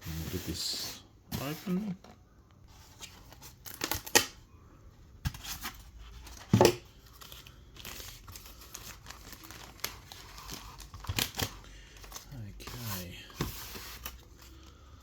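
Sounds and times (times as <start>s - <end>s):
packaging crinkling and tearing: 5.4s - 13.0s.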